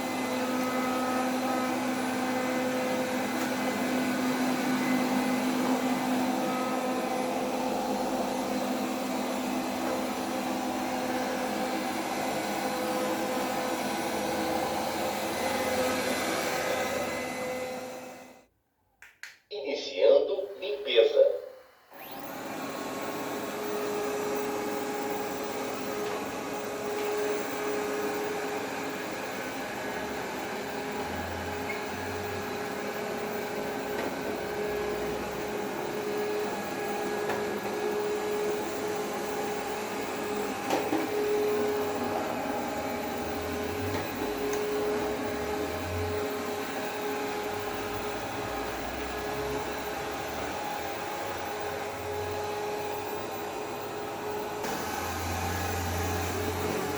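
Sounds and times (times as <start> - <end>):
robot vacuum motor humming: 21.9 - 56.9.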